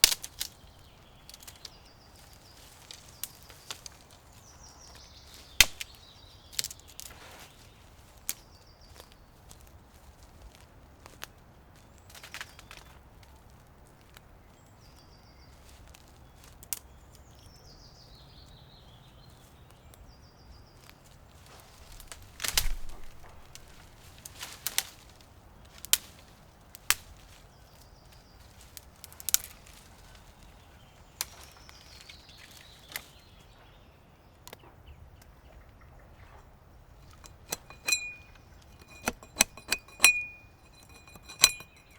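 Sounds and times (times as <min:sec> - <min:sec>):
sharp knocks and snaps: 0:00.0 - 0:00.6, 0:05.6 - 0:06.0, 0:21.9 - 0:24.9, 0:29.0 - 0:29.6.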